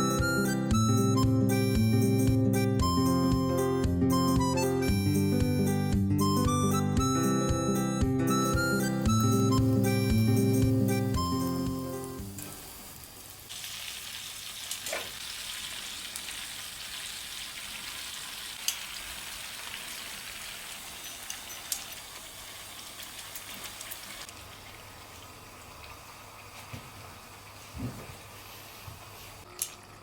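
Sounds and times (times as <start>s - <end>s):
background music: 0.0s - 12.3s
oil sizzling in a pan: 8.8s - 30.0s.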